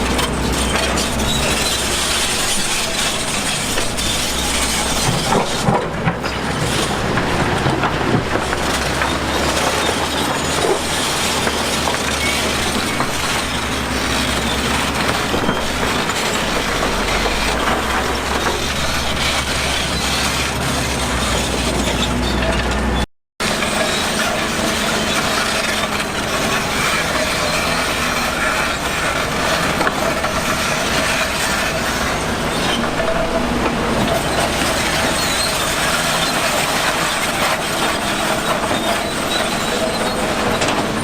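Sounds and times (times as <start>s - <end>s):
diesel engine drone: 0.0s - 41.0s
machinery clattering and grinding: 0.0s - 41.0s.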